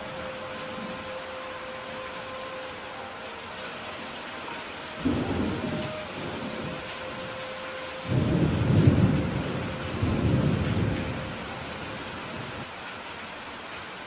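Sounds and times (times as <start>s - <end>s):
steady rain falling: 0.0s - 14.0s
thunder rolling: 8.0s - 11.7s.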